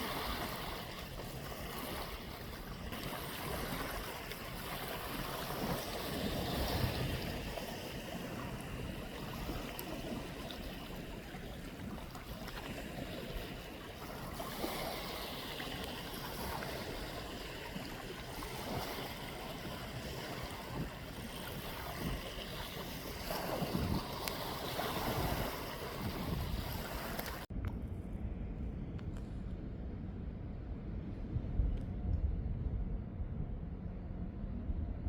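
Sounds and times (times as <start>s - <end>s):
sea waves washing ashore: 0.0s - 27.5s
wind buffeting microphone: 0.0s - 35.0s.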